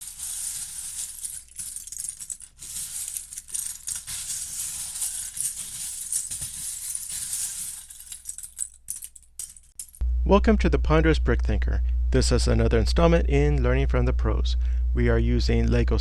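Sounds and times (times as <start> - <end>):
plastic pieces rattling: 0.0 - 10.0.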